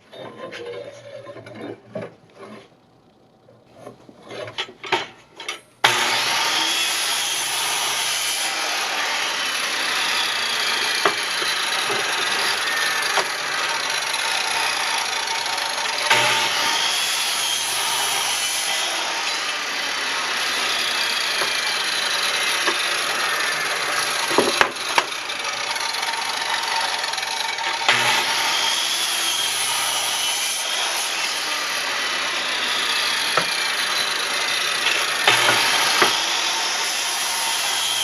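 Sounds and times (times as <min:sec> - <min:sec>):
power woodworking tool running: 0:05.8 - 0:38.0
knocks of wooden boards: 0:24.3 - 0:25.2, 0:35.3 - 0:36.2.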